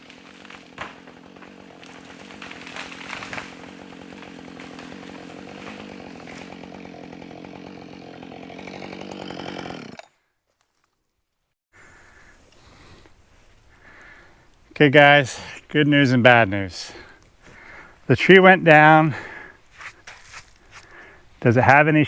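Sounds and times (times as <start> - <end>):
chainsaw cutting through trunk: 0.0 - 10.2.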